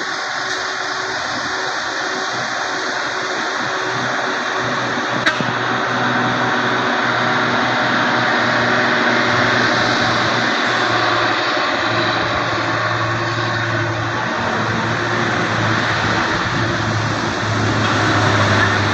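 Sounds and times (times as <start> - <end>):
heavy truck engine running: 0.0 - 18.9.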